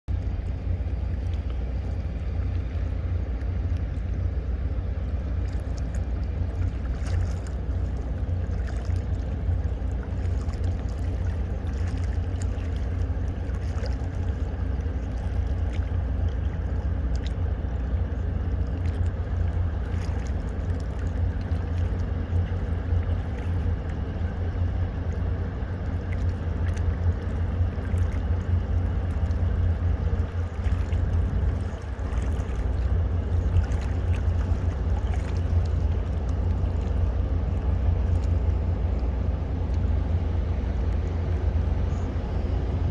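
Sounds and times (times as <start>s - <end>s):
tugboat engines rumbling: 0.1s - 42.9s.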